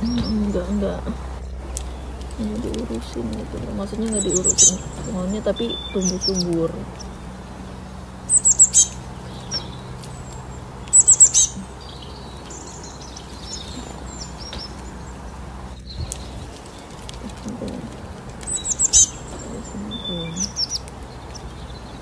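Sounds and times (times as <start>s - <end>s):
small songbird chirping: 0.0s - 22.0s.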